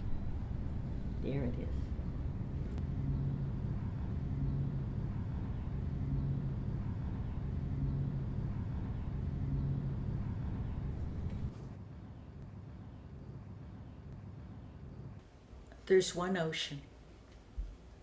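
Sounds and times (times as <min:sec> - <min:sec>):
low engine drone: 0:00.0 - 0:15.2.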